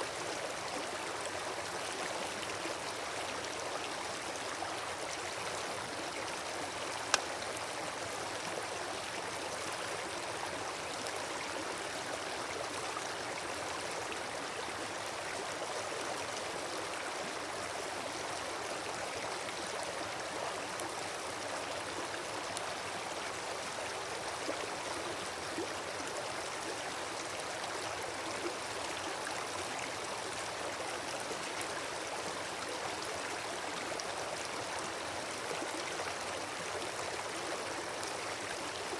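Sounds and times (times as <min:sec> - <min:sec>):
campfire pops: 0:07.1 - 0:07.3.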